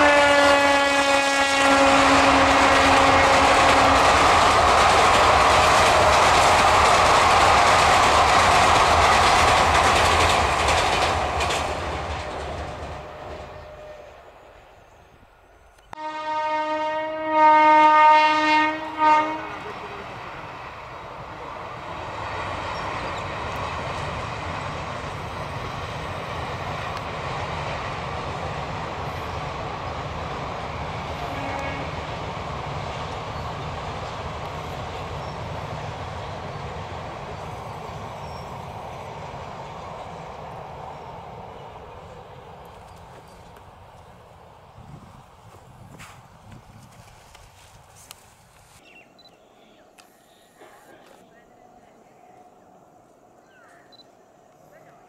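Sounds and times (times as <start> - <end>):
locomotive horn blast: 0.0 - 4.2, 15.9 - 19.8, 31.2 - 32.1
train on steel rail bridge: 0.0 - 55.0
train running over rails: 0.0 - 55.0.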